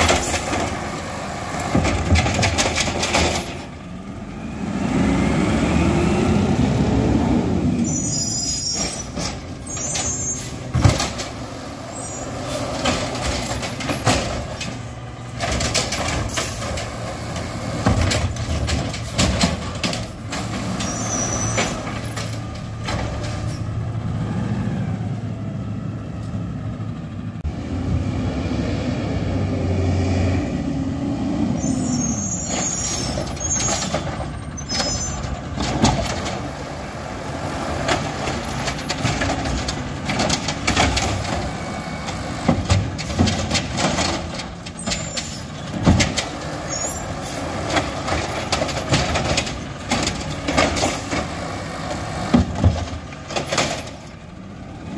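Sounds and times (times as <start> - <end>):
knocks and clanks: 0.0 - 3.8, 8.8 - 11.7, 12.6 - 23.6, 32.5 - 36.7, 37.6 - 46.7, 47.4 - 54.3
garbage truck diesel engine: 0.0 - 54.9.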